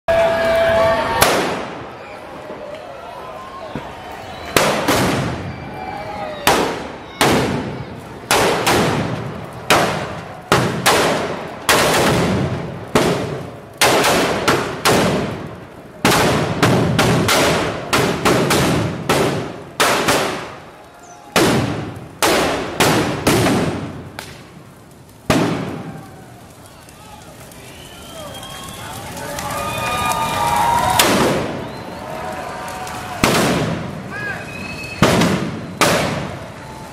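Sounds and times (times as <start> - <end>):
firework bangs with echo: 0.8 - 2.7, 3.7 - 26.4, 28.1 - 36.9.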